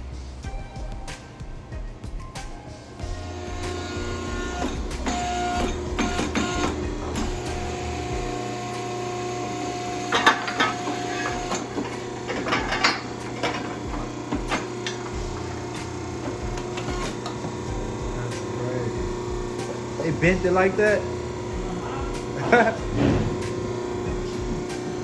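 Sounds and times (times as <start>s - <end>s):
machine hum: 0.0s - 25.0s
metal clicks and clanks: 10.1s - 17.5s
metal clattering: 10.1s - 18.5s.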